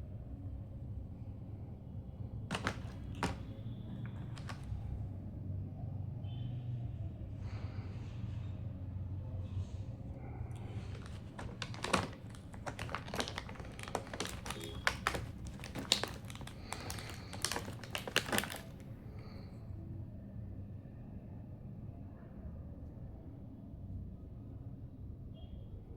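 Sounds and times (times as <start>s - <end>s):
hard plastic clicking and tapping: 2.5s - 4.8s, 10.9s - 18.8s.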